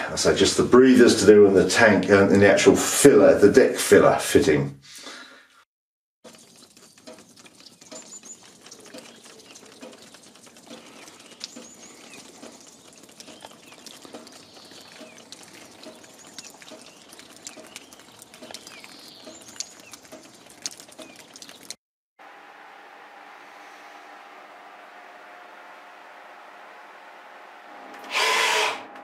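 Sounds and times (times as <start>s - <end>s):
birds chirping: 6.3s - 21.8s
small clicks and ticks: 6.3s - 21.8s.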